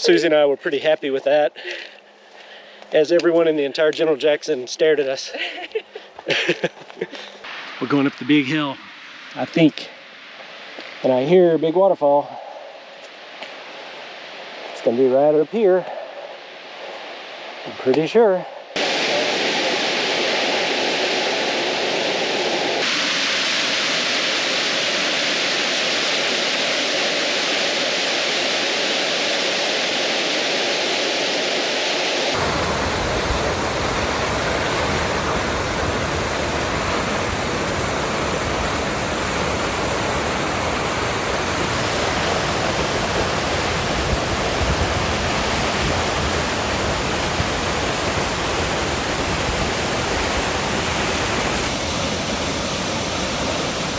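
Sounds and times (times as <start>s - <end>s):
waterfall rushing: 18.8s - 53.9s.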